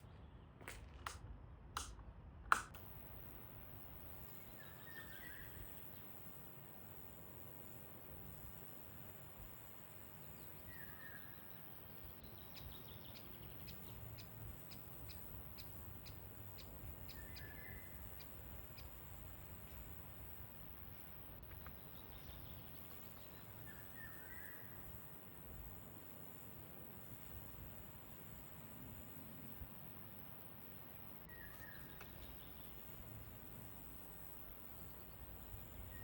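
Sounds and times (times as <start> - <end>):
faint birds chirping: 2.8 - 36.0
sharp high ticking bird calls: 4.0 - 6.7, 10.0 - 25.2, 30.1 - 36.0.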